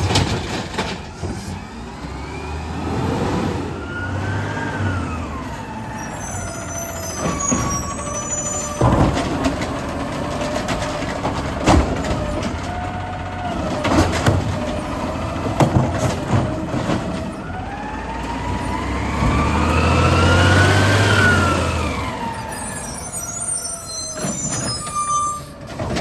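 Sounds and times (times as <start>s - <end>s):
garbage truck engine: 0.0s - 26.0s
hydraulic whine: 19.0s - 25.7s.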